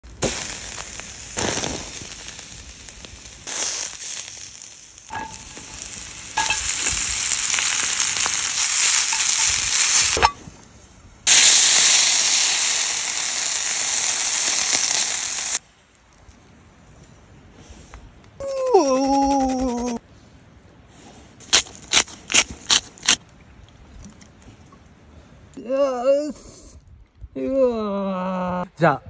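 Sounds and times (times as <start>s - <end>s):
food sizzling on grill: 0.0s - 10.3s, 11.3s - 15.6s.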